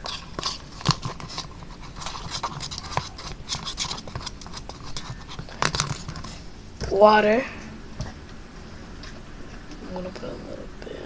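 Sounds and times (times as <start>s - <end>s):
spoon scraping plastic cup: 0.0s - 6.4s.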